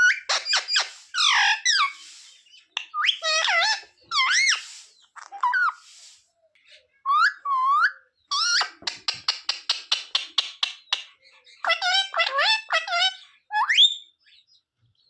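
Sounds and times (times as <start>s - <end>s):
parrot chattering: 0.0s - 2.2s, 2.8s - 5.9s, 11.6s - 13.2s.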